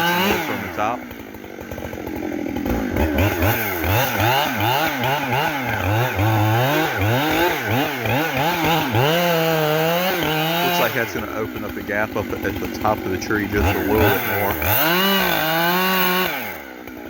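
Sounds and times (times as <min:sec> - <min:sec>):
chainsaw cutting tree: 0:00.0 - 0:17.0.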